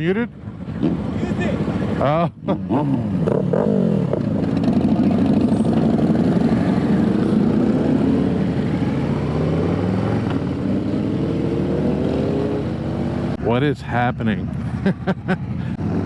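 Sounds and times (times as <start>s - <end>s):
motorcycle engine running: 2.7s - 10.8s.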